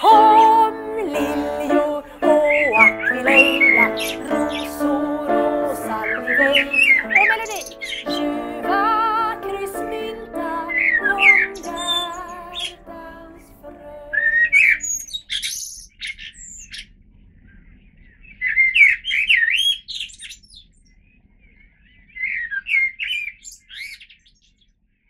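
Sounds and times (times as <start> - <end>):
songbird warbling: 0.0 - 12.9
music: 0.0 - 14.6.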